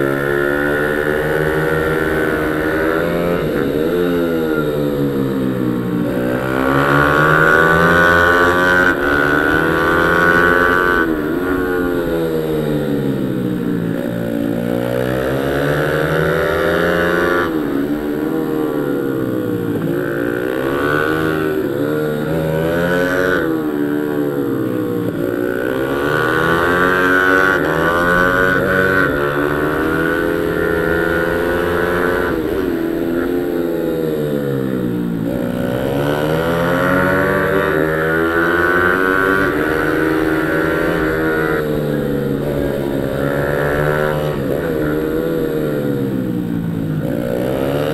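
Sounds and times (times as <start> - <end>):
motorbike engine accelerating: 0.0 - 47.9.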